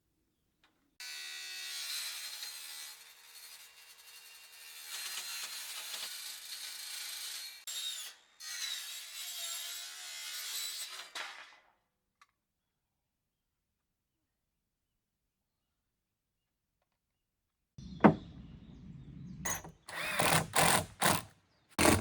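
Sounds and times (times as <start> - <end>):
wood being cut rasping: 19.5 - 22.0.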